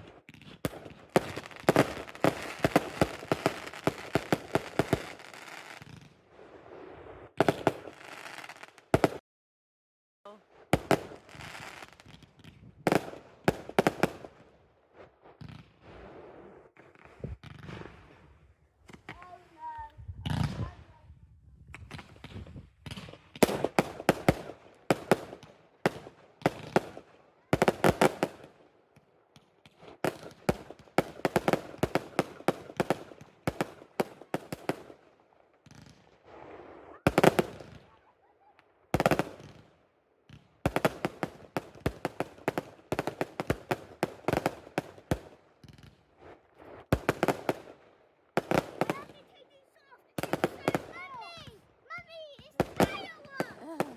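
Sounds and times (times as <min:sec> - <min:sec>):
fireworks crackling: 0:00.0 - 0:09.2, 0:10.6 - 0:18.2, 0:21.8 - 0:38.0, 0:38.9 - 0:39.7, 0:40.3 - 0:53.9
fireworks loud bangs: 0:48.4 - 0:53.9.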